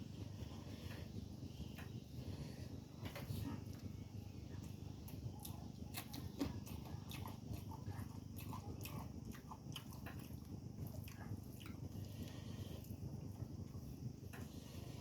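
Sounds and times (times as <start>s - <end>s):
person chewing: 5.1s - 12.4s.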